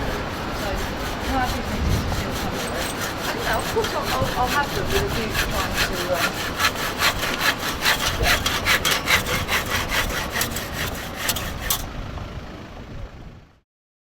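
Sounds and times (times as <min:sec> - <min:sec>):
hand saw cutting pipe: 0:00.0 - 0:11.9.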